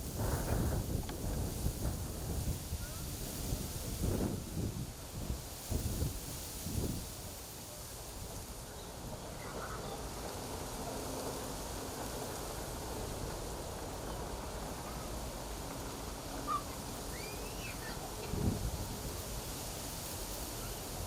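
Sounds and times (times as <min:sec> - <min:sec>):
wind blowing through reeds: 0:00.0 - 0:21.0
faint bird chirps: 0:16.5 - 0:18.0.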